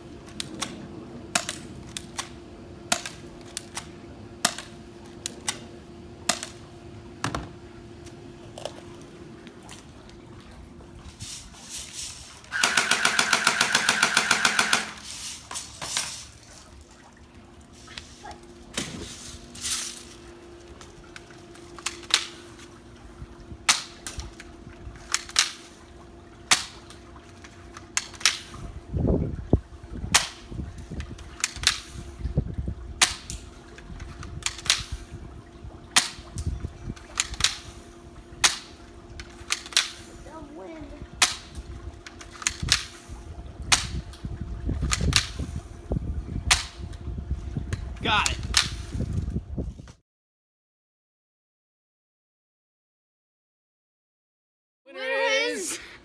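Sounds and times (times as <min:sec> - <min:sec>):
airsoft gun full-auto burst: 0:12.5 - 0:15.0
airsoft gun single shots: 0:12.5 - 0:15.0.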